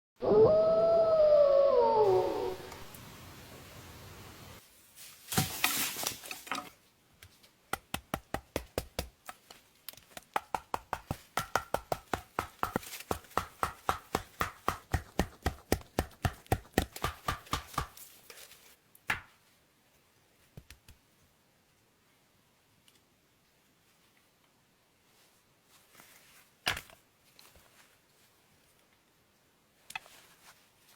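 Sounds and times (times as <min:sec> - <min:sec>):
rustling: 0:04.6 - 0:07.6, 0:25.0 - 0:29.1, 0:29.8 - 0:30.9
chopping strikes: 0:10.2 - 0:18.0.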